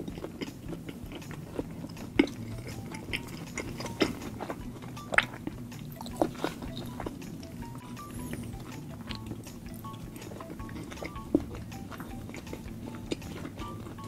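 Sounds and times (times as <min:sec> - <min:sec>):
chewing with wet mouth clicks: 0:00.0 - 0:14.0.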